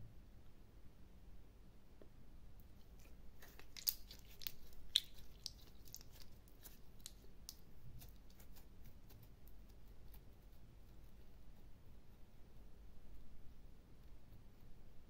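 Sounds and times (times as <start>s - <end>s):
slime sticky clicks and pops: 3.4s - 6.2s.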